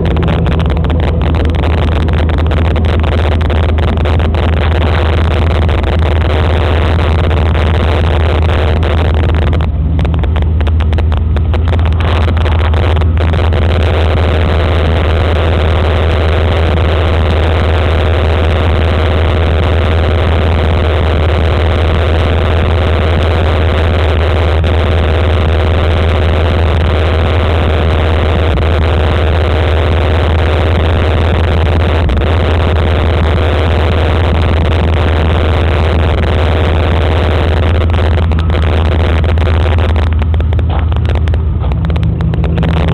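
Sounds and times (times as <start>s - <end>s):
deep engine exhaust note: 0.0s - 42.9s.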